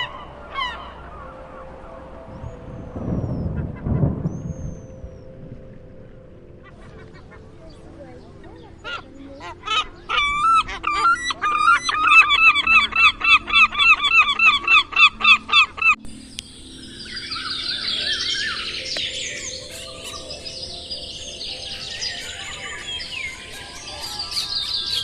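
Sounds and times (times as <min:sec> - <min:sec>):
small birds chirping: 0:06.6 - 0:25.0
goose honking: 0:21.7 - 0:25.0.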